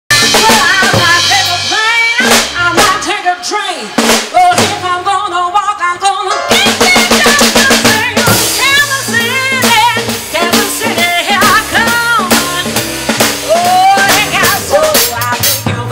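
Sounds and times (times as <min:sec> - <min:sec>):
bass drum: 0:00.1 - 0:03.2, 0:06.5 - 0:15.9
live band music: 0:00.1 - 0:15.9.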